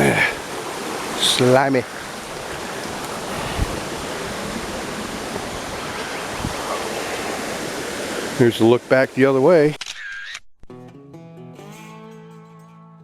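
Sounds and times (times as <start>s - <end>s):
water flowing over rocks: 0.0s - 9.6s.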